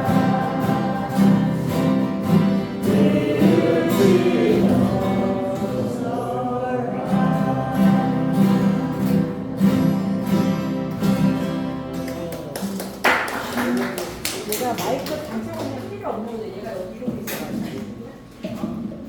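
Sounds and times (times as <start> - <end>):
voices singing together: 0.0 - 11.2
acoustic guitars strumming: 0.0 - 13.0.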